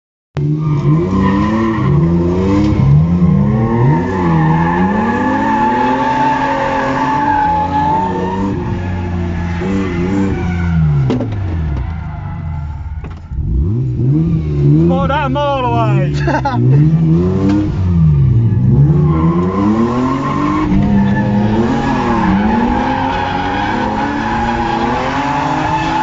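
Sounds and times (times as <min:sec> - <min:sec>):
car engines revving: 0:00.4 - 0:26.0
tyre squeal: 0:18.6 - 0:26.0.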